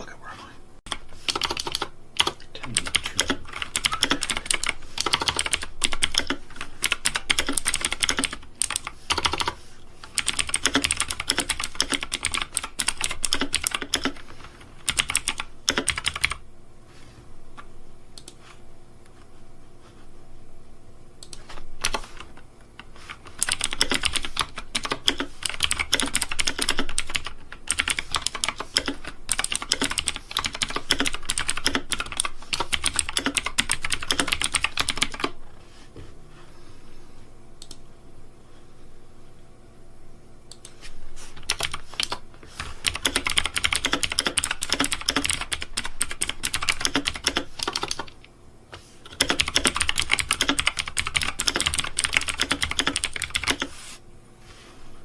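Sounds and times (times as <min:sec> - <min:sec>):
fast typing on keyboard: 0:00.9 - 0:16.4, 0:21.3 - 0:35.4, 0:41.4 - 0:42.2, 0:42.8 - 0:48.3, 0:49.1 - 0:53.8.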